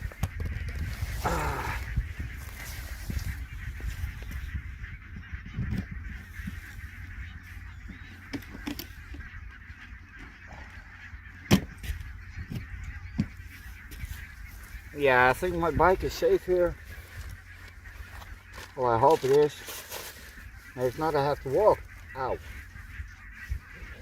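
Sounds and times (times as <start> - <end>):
wind rumble on microphone: 0.0 - 18.8, 20.1 - 24.0
flock of geese honking: 0.0 - 24.0.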